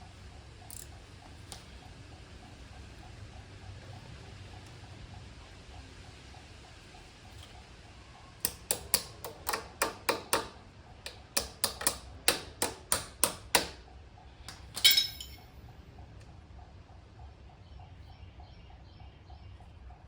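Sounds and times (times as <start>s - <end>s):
sharp clicks: 8.4s - 13.8s
metallic clatter with ringing: 14.8s - 15.6s.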